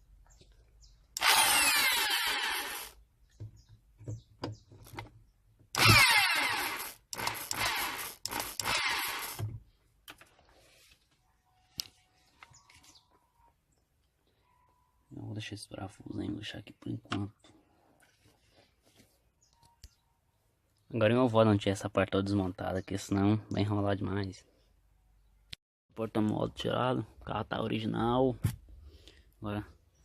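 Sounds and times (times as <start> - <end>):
power drill running: 1.2 - 3.0, 5.8 - 9.5.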